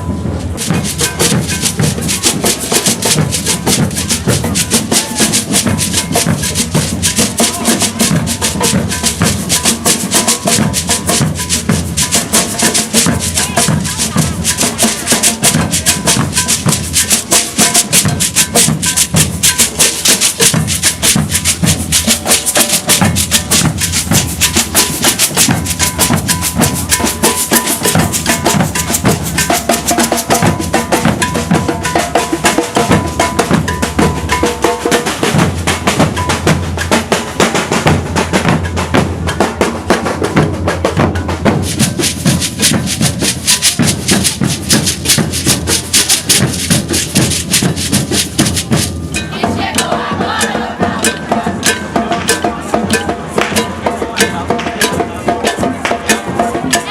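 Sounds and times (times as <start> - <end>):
percussion ensemble groove: 0.0 - 56.9
snare drums: 0.0 - 56.9
shakers: 0.4 - 37.3, 41.1 - 56.9
struck metal bell: 23.0 - 32.4, 51.0 - 56.8.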